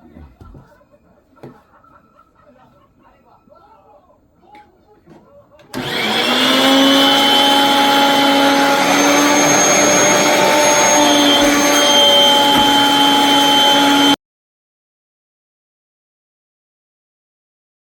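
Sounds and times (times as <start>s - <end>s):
vacuum cleaner running: 5.7s - 14.2s.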